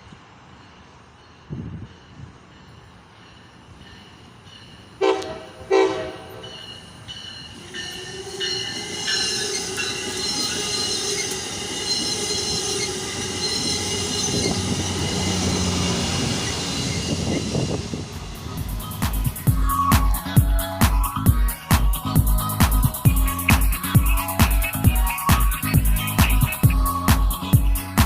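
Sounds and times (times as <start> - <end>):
train rumble: 0.0 - 28.0
train horn blasts: 5.0 - 6.8
high wheel squeal: 6.4 - 28.0.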